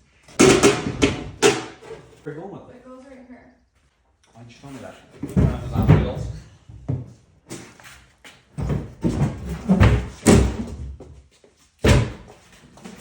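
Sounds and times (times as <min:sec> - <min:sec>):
cabinet knocks and thumps: 0:00.4 - 0:01.8, 0:05.2 - 0:07.1, 0:08.6 - 0:11.1, 0:11.8 - 0:12.3
cabinet door bang: 0:09.2 - 0:10.7.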